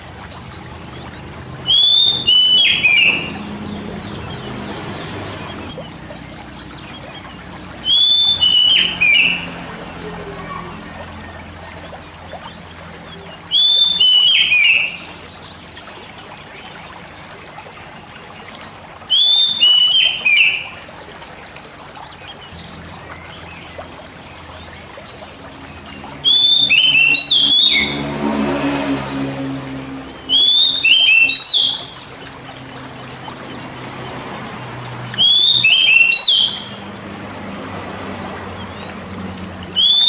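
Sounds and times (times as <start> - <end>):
hissing wash: 0.0 - 5.8, 25.3 - 30.4
songbird whistling: 1.6 - 4.5, 7.8 - 9.4, 13.0 - 15.1, 19.1 - 20.8, 26.2 - 28.0, 30.3 - 32.1, 35.1 - 37.0, 39.7 - 40.0.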